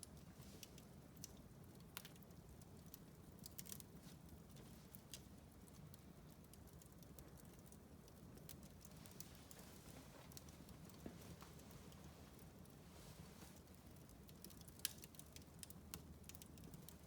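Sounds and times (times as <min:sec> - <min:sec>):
fireplace fire crackling: 0:00.0 - 0:17.0.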